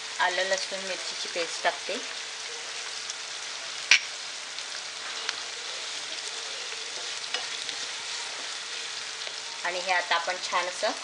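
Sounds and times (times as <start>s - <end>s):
food sizzling in hot oil: 0.0s - 11.0s
wooden spatula stirring: 5.0s - 9.5s.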